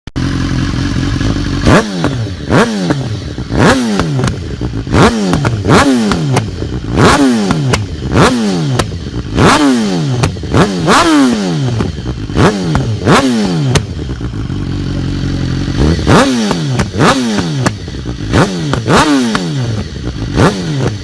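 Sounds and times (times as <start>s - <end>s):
motorcycle engine revving: 0.1s - 21.0s.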